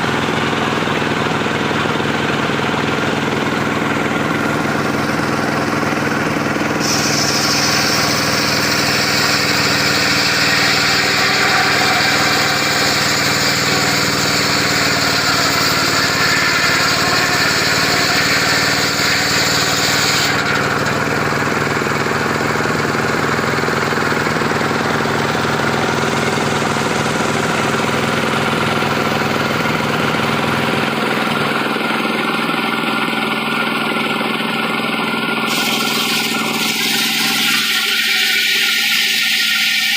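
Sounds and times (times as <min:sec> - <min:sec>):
portable sawmill engine running: 0:00.0 - 0:39.9
high hissing whine: 0:03.8 - 0:21.0, 0:35.5 - 0:39.9.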